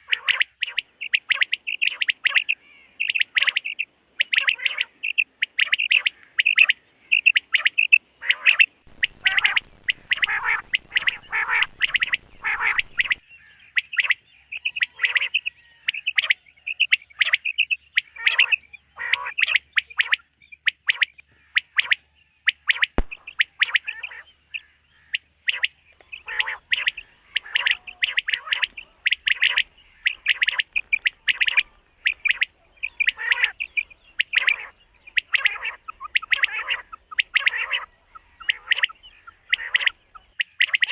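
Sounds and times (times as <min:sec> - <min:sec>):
quail calling: 0:00.0 - 0:40.9
single click: 0:23.0 - 0:24.1.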